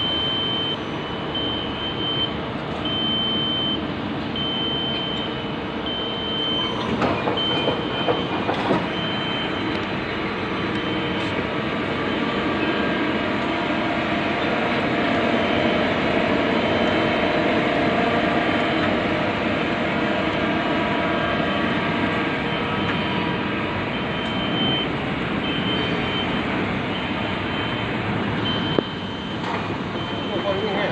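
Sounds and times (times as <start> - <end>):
high beeps: 7.4 - 9.9, 10.7 - 11.4, 23.9 - 30.8.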